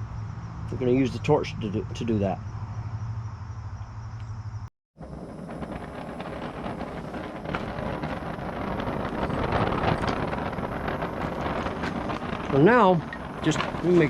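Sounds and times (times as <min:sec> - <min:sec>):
faint crackling: 0:05.0 - 0:14.0
gas torch roaring: 0:05.0 - 0:14.0.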